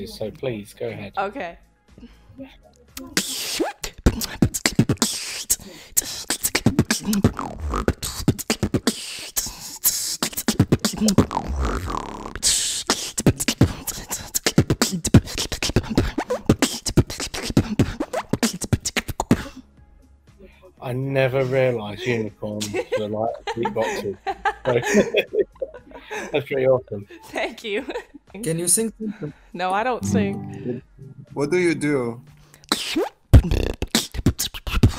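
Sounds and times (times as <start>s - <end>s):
beatboxing mouth clicks and pops: 3.0s - 19.6s, 32.6s - 34.9s
hummed sliding notes: 30.0s - 32.6s.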